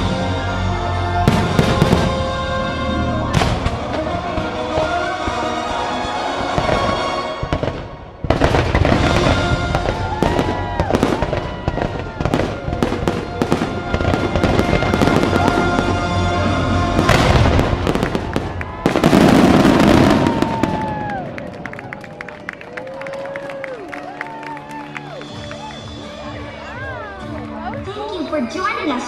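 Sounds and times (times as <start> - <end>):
music: 0.0 - 29.0
fireworks bangs and crackles: 1.1 - 23.0.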